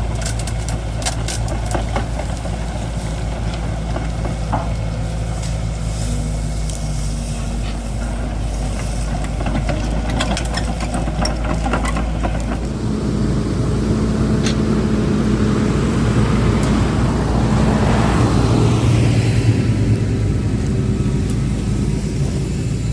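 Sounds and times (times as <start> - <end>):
branches crackling in chipper: 0.0 - 22.9
wood chipper running: 0.0 - 22.9.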